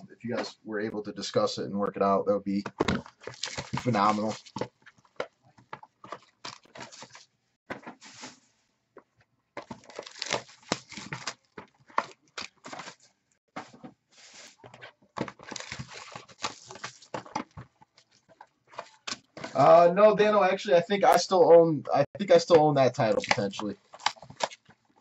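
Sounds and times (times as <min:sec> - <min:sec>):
packaging crinkling and tearing: 0:03.0 - 0:04.7, 0:09.6 - 0:13.1, 0:15.2 - 0:18.2, 0:23.1 - 0:24.7.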